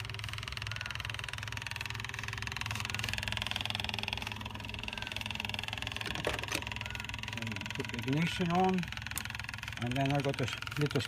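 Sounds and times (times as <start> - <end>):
electric fuel pump buzzing: 0.0 - 11.0.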